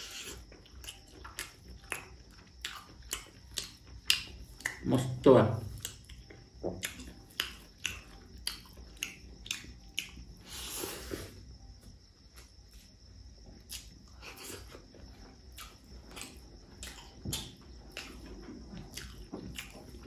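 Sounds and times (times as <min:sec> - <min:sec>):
chewing with wet mouth smacks: 0:00.0 - 0:05.0, 0:05.7 - 0:10.3, 0:15.5 - 0:20.0.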